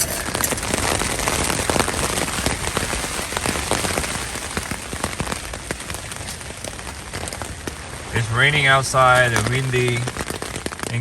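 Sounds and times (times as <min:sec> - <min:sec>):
rain hitting tent fabric: 0:00.0 - 0:11.0
wind gusting against tent: 0:00.0 - 0:11.0.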